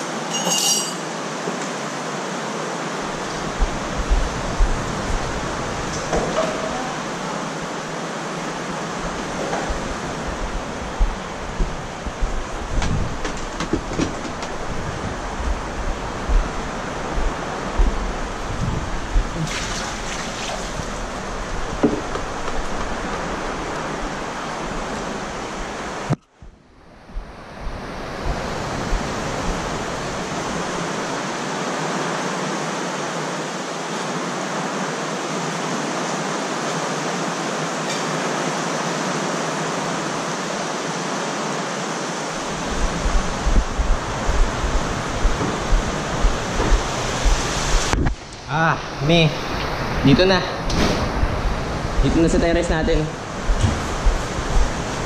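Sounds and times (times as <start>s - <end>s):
heavy rain pouring: 1.1s - 26.2s, 26.8s - 55.0s
low thumps: 3.4s - 6.8s, 9.0s - 19.4s, 42.5s - 48.2s, 53.2s - 55.0s.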